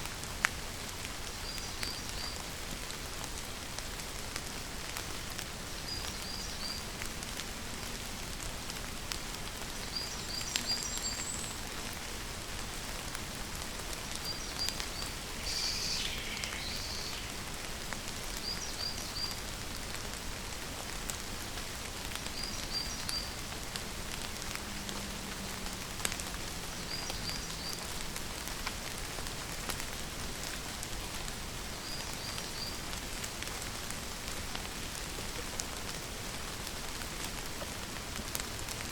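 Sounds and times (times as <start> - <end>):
steady rain falling: 0.0 - 38.9
bird chirping: 14.2 - 17.6.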